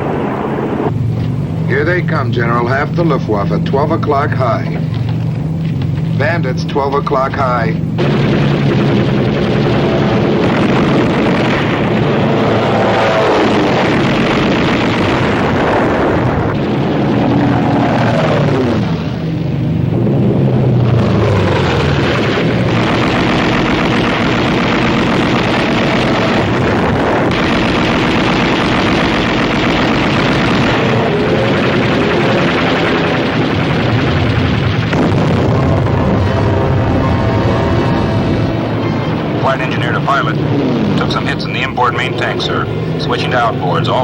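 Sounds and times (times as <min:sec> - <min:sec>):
bomber engines droning: 0:00.0 - 0:44.0
fighter planes diving past: 0:00.0 - 0:44.0
gunfire: 0:08.0 - 0:19.2, 0:21.0 - 0:42.3
explosions: 0:08.0 - 0:44.0.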